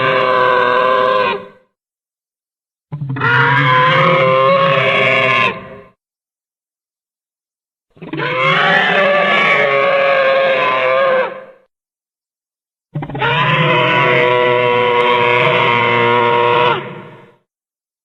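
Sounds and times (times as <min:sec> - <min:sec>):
monster roars: 0:13.0 - 0:17.4.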